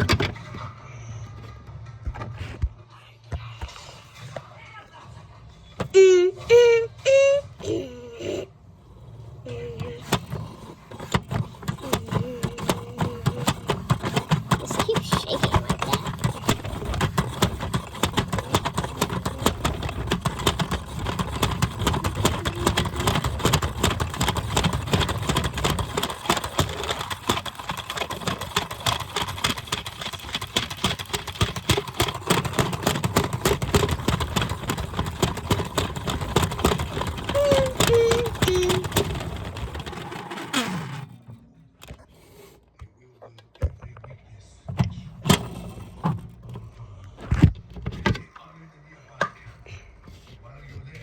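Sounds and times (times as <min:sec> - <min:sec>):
washing machine rattling: 0:00.0 - 0:00.6, 0:09.5 - 0:41.3, 0:44.8 - 0:46.7.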